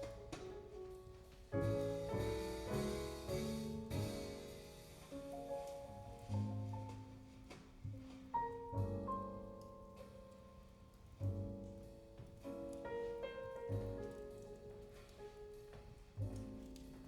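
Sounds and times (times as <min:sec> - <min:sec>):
double bass notes: 0:00.0 - 0:07.3
piano chords: 0:00.0 - 0:17.0.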